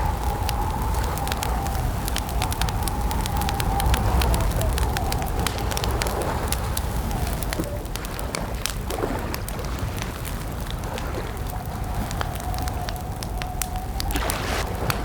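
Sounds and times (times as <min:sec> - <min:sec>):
faint wavering whistle: 0:00.0 - 0:06.2
campfire crackling and popping: 0:00.0 - 0:15.0.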